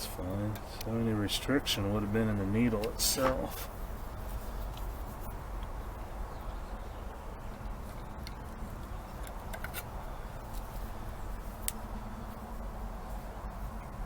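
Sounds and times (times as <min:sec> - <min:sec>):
steady low hum: 0:00.0 - 0:14.0
light clicks and taps: 0:02.8 - 0:03.6.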